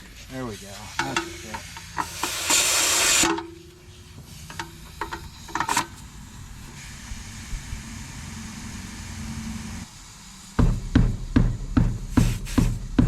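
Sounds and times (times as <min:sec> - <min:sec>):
compressed air hissing into tire: 0:00.0 - 0:13.0
low motor hum: 0:06.0 - 0:13.0.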